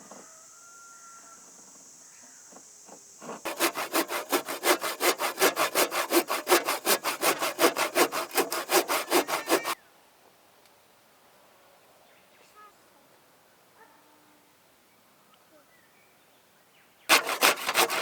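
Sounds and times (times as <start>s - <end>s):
rapid scraping strokes: 3.2s - 9.8s, 17.1s - 18.0s.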